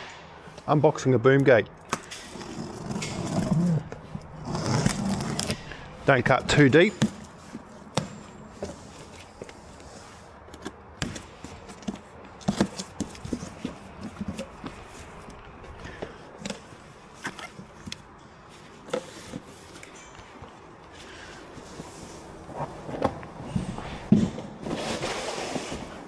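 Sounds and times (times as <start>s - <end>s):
packaging taps and scrapes: 1.8s - 26.0s
knife cutting cardboard box: 1.9s - 14.9s.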